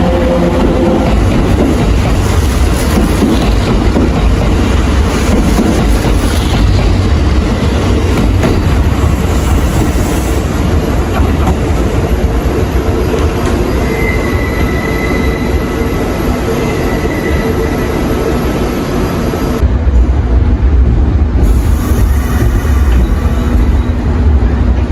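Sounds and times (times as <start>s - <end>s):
train wheels rumbling on rail: 0.0s - 24.9s.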